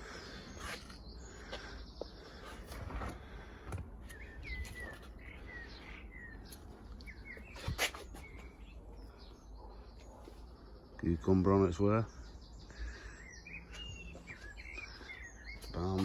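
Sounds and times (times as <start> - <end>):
outdoor background noise: 0.0 - 16.0
songbird chirping: 0.0 - 16.0.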